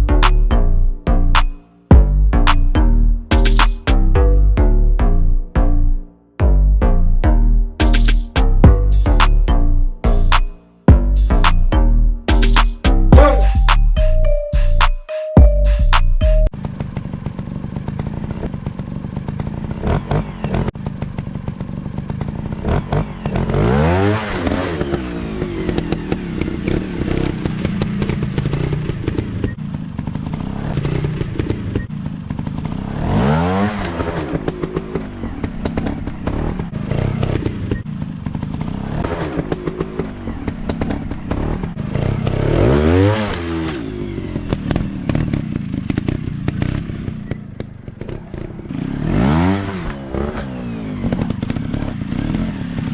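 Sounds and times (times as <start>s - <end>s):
dirt bike engines revving: 16.7s - 52.9s.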